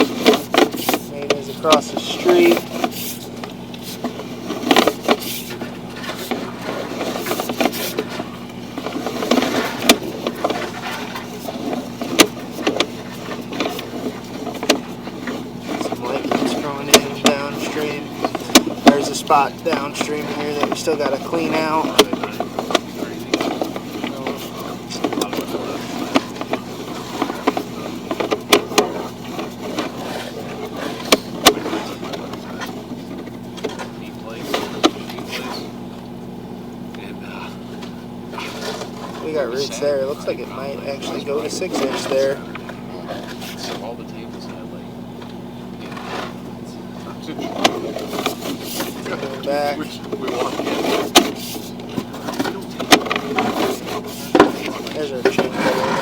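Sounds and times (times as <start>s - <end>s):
sharp clicks and knocks: 0.0s - 35.5s
steady low hum: 0.0s - 56.0s.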